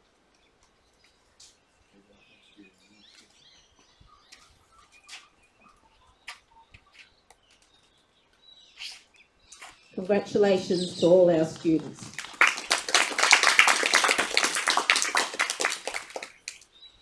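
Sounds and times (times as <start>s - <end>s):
faint birds chirping: 0.0s - 17.0s
sharp bird chirps: 8.7s - 11.1s.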